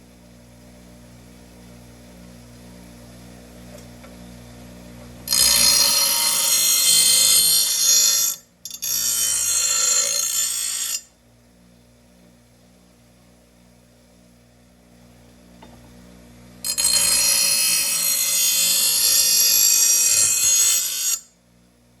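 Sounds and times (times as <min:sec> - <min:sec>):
power grinder grinding steel: 0:05.3 - 0:11.1, 0:16.6 - 0:21.3.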